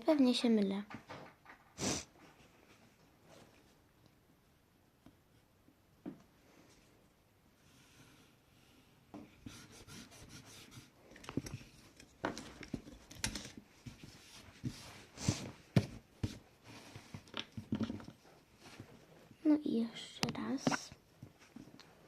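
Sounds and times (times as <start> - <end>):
pencil scratching on paper: 9.4 - 11.0.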